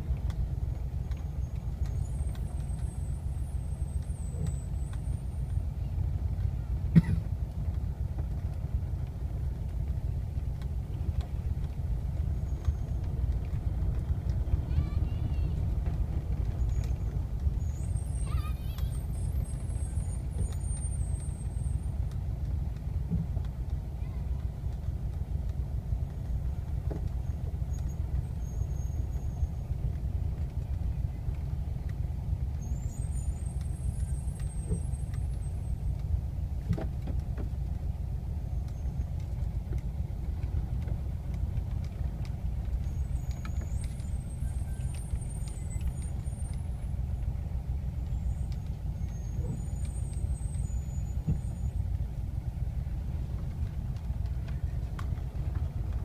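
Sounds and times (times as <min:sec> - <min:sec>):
car engine rumble: 0:00.0 - 0:56.0.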